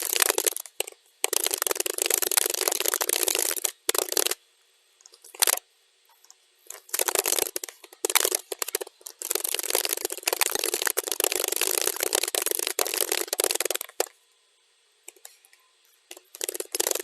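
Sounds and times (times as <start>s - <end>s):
fast keyboard typing: 0.0s - 4.4s, 6.7s - 14.1s, 16.1s - 17.0s.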